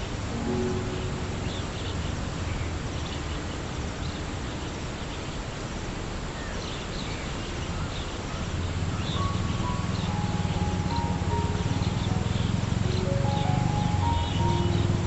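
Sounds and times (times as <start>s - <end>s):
outdoor background noise: 0.0s - 15.0s
small birds chirping: 6.4s - 15.0s.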